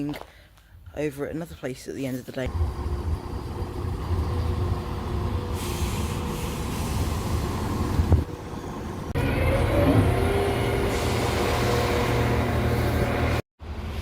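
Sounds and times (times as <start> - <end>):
train rumbling: 2.5 - 14.0
humming tones: 9.2 - 13.1.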